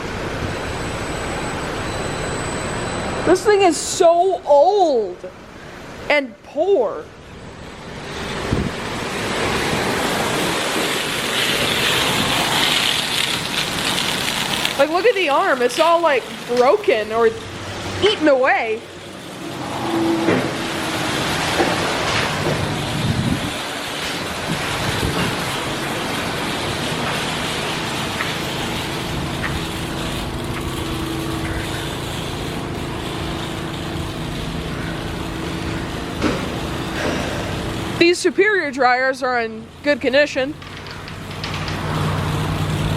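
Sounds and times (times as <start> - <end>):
motor hum: 7.6 - 10.1, 22.5 - 38.0
car wash water spray: 7.6 - 40.2, 41.0 - 42.9.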